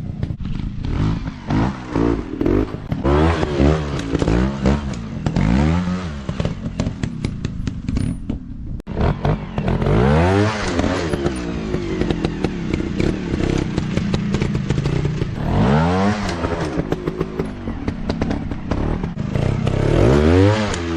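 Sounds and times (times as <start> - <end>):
dirt bike engines revving: 0.5 - 7.9, 8.9 - 20.9
clattering and scraping: 6.3 - 8.5.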